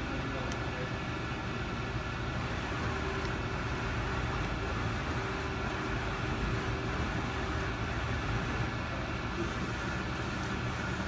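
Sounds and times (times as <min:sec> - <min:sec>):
machine humming: 0:01.8 - 0:11.0.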